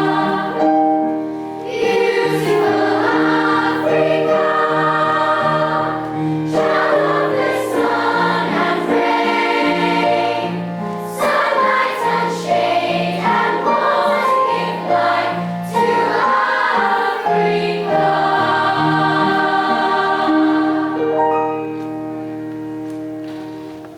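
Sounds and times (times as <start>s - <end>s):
choir singing in parts: 0.0s - 21.8s.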